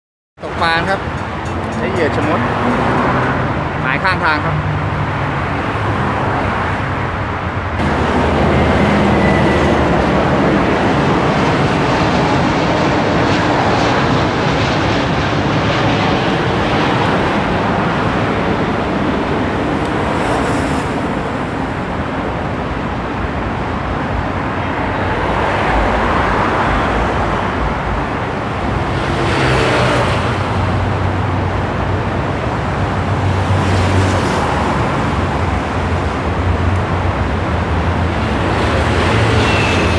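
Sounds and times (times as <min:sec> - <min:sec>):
road noise: 0:00.4 - 0:39.9.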